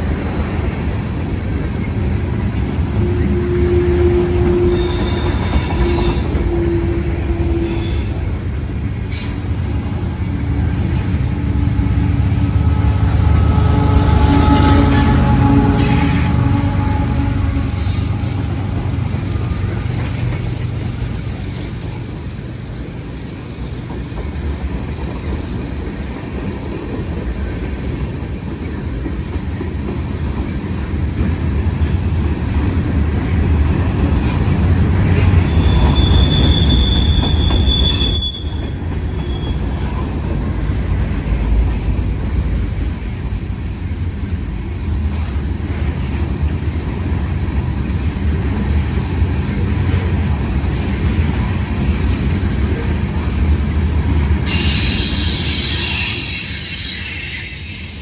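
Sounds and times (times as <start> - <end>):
high wheel squeal: 0.0 - 1.0, 2.9 - 23.0, 35.2 - 40.2, 54.4 - 58.0
freight train rumbling past: 0.0 - 58.0
wheels clacking over rail joints: 0.5 - 55.5.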